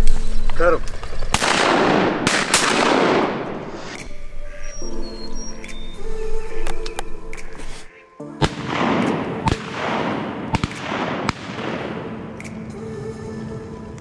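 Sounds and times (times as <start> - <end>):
background music: 0.0 - 14.0
shotgun blasts with echo: 1.2 - 4.0, 8.4 - 12.4.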